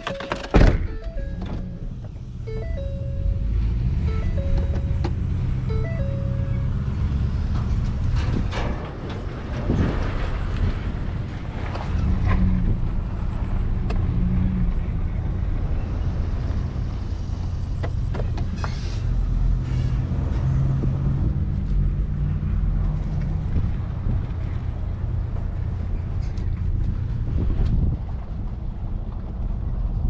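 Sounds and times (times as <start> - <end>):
vehicle engine running at low speed: 0.9 - 30.0.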